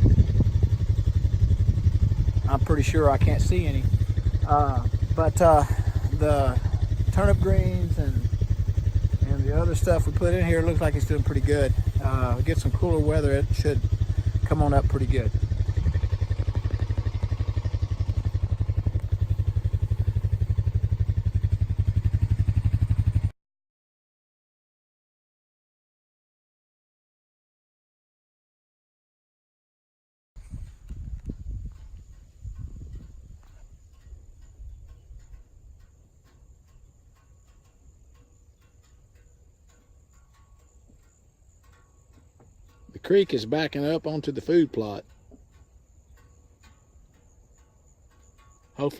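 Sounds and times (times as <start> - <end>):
engine idling: 0.0 - 23.3, 30.4 - 48.9
low rumble: 0.0 - 23.3, 30.4 - 48.0
insects chirring: 0.3 - 21.6, 30.5 - 48.9
light clicks and ticks: 30.7 - 48.9.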